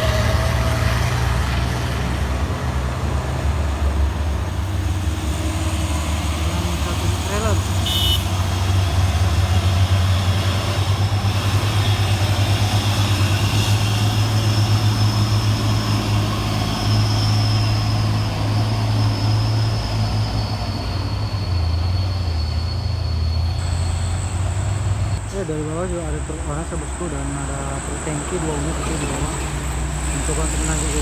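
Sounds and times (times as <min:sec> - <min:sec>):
heavy diesel truck engine labouring: 0:00.0 - 0:31.0
high engine whine: 0:00.0 - 0:31.0.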